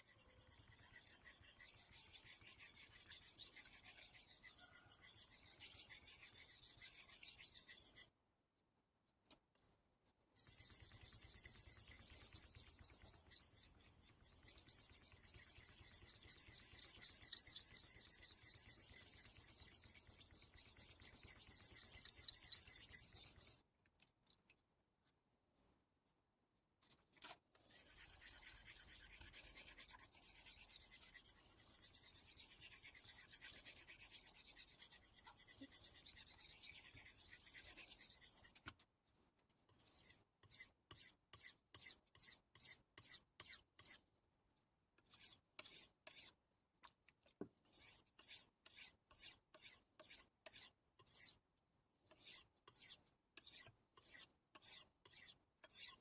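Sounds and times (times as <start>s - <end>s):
knife scraping on whetstone: 10.4s - 23.6s, 27.7s - 38.6s, 52.2s - 56.0s.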